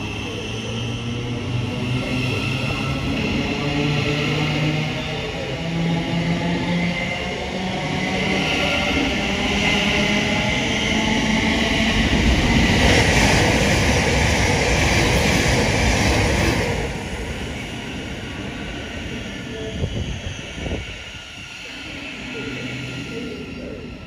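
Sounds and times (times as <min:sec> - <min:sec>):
train wheels rumbling on rail: 0:00.0 - 0:24.0
faint train whine: 0:13.5 - 0:24.0.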